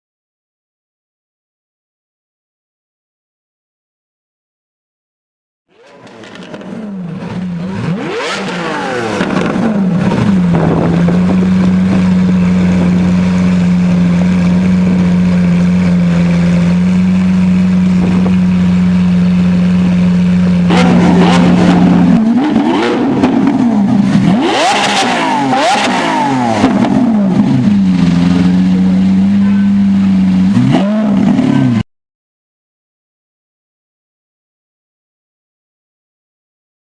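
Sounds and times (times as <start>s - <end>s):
engine throttle blips: 5.7s - 31.8s
car engine idling: 5.9s - 31.8s.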